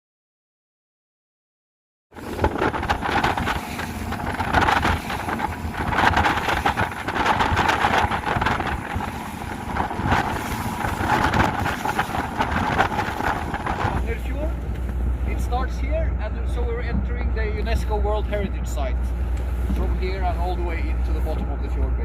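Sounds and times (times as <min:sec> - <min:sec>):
rushing water: 0:02.2 - 0:22.0
speedboat motor: 0:02.2 - 0:22.0
wind buffeting microphone: 0:02.2 - 0:22.0.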